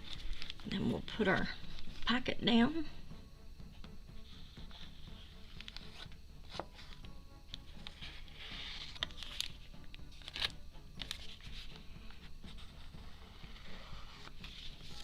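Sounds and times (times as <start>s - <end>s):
paper rustling and scraping: 0.0s - 2.1s, 4.4s - 7.0s, 7.7s - 15.0s.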